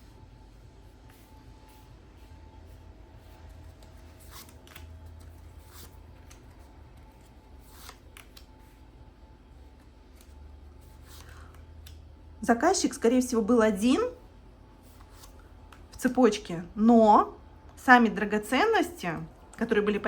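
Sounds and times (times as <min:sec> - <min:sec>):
cards rustling and clicking: 0:01.6 - 0:09.0, 0:09.6 - 0:12.1.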